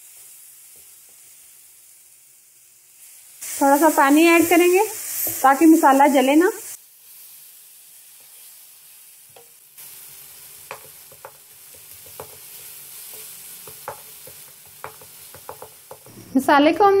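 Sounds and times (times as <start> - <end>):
masala sizzling in a wok: 0.0 - 17.0
spatula tapping against pan: 10.7 - 12.5, 13.1 - 16.1.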